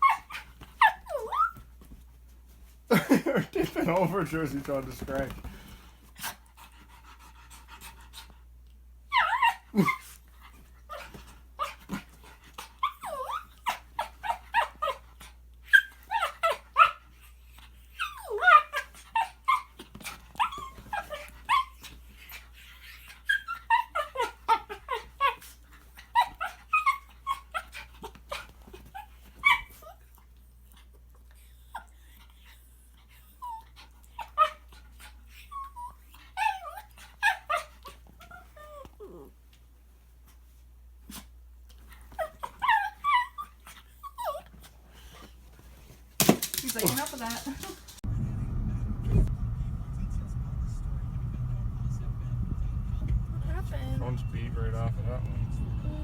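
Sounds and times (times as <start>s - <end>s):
dog whining and yipping: 0.0s - 1.7s, 9.1s - 11.8s, 12.6s - 17.2s, 17.9s - 30.1s, 33.1s - 39.4s, 41.9s - 44.7s.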